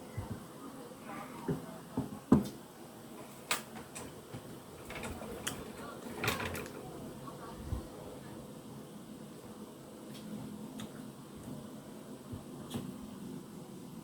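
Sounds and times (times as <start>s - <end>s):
soft eating knocks and clicks: 10.1s - 11.6s.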